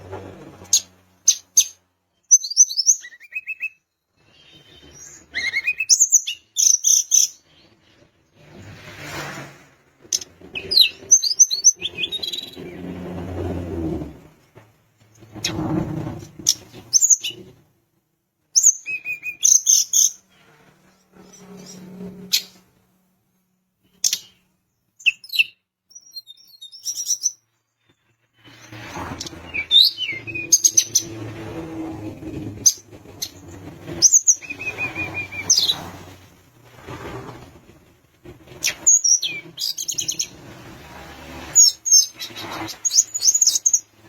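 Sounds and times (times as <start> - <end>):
songbird chirping and trilling: 0.7 - 8.0, 10.2 - 13.0, 16.5 - 17.5, 18.6 - 20.3, 23.9 - 27.4, 29.2 - 31.4, 41.6 - 44.0.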